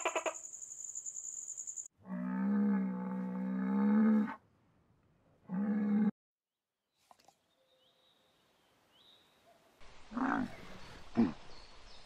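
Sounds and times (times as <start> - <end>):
cow mooing: 2.0 - 4.4.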